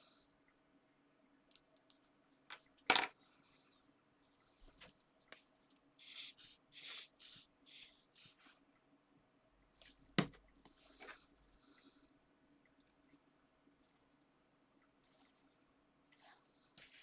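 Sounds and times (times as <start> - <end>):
hands rubbing paper card: 6.0 - 8.4.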